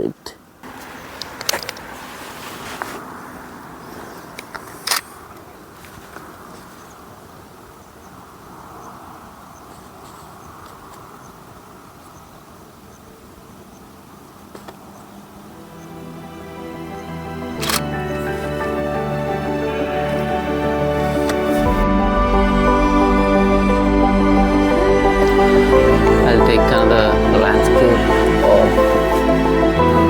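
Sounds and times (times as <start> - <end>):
steady outdoor hiss: 0.0 - 30.0
camera shutter click: 17.6 - 18.0.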